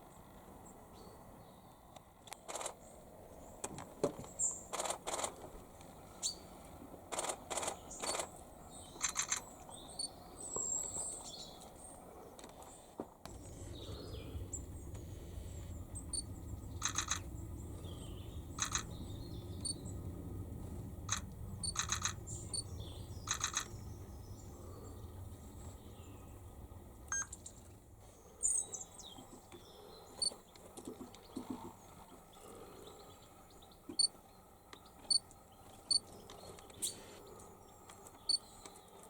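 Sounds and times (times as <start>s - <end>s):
small birds chirping: 6.1s - 6.6s, 7.5s - 39.0s
low steady rumble: 13.2s - 38.6s
rapid sharp clicking: 16.2s - 17.4s, 18.6s - 19.0s, 21.1s - 23.9s.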